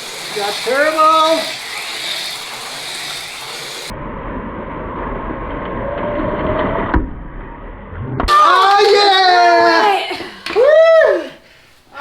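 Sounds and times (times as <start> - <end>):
slot car motors whirring: 0.0 - 3.9.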